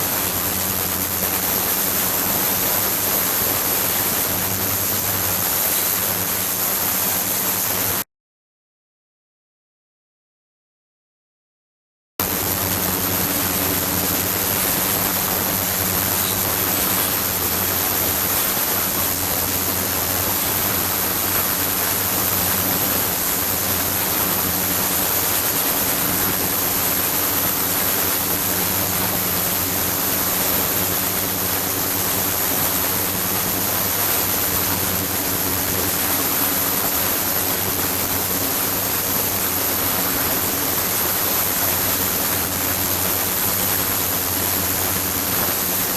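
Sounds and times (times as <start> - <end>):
high steady whine: 0.0 - 8.0, 12.2 - 45.9
low mains hum: 12.2 - 45.9.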